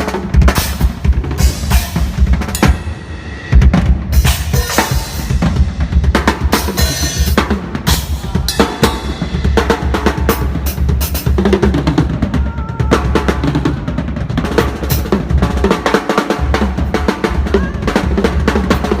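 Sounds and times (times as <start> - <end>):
snare and cymbal hits: 0.0 - 12.3
bass drum: 0.0 - 19.0
pitched music: 0.5 - 13.5.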